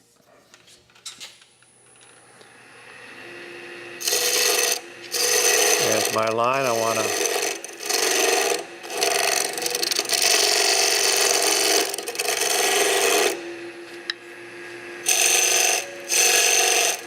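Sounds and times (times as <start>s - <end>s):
lathe humming: 1.7s - 17.0s
tool scraping wood on lathe: 4.0s - 17.0s.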